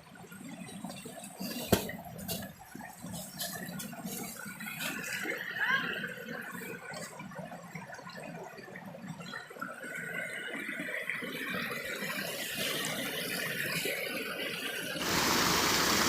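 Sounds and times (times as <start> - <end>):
stream rushing and gurgling: 15.0 - 16.0.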